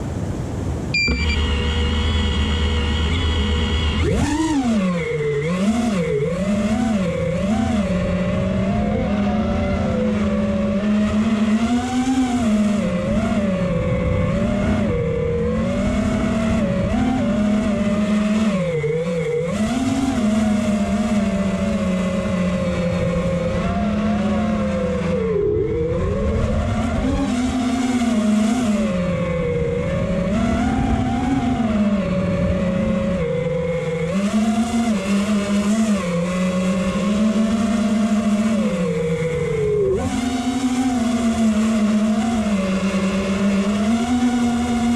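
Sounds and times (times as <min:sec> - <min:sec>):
steady rushing noise: 0:00.0 - 0:11.6
quadcopter motors whining: 0:00.2 - 0:44.9.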